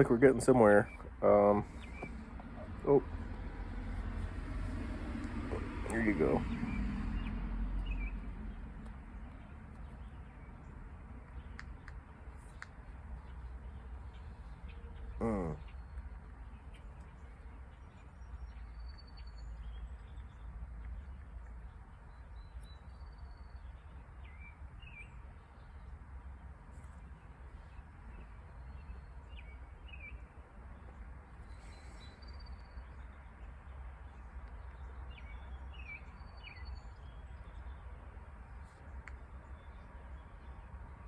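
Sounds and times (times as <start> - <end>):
steady low rumble: 0.0 - 14.6
birds chirping faintly: 0.0 - 41.0.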